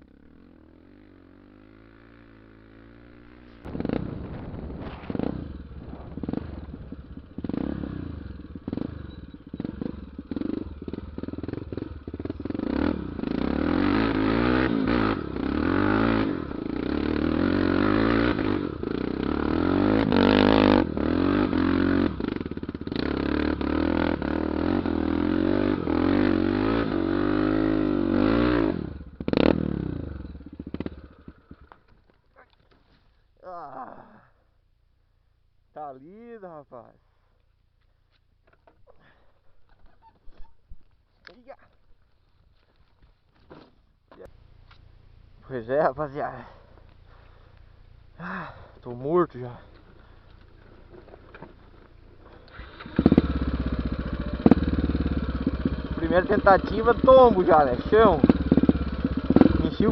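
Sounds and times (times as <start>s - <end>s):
motorcycle engine revving: 0.0s - 32.1s, 44.1s - 59.9s.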